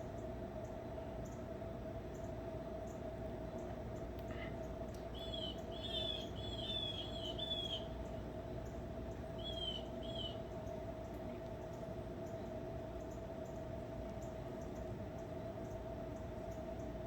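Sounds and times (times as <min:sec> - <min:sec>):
steady low hum: 0:00.0 - 0:17.0
bird chirping: 0:05.1 - 0:07.9, 0:09.4 - 0:10.4.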